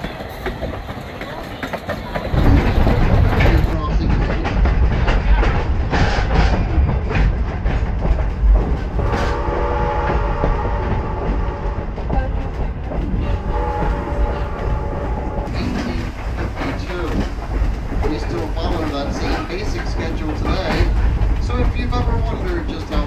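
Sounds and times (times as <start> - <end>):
train rumbling with clicking wheels: 0.0 - 23.0
locomotive whistle: 9.0 - 11.9, 13.2 - 16.1.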